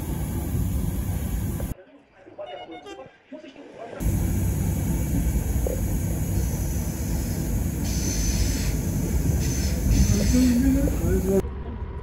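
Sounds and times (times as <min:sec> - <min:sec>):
train rumbling on rails: 0:00.0 - 0:01.7, 0:04.0 - 0:12.0
sharp hiss: 0:04.0 - 0:11.4.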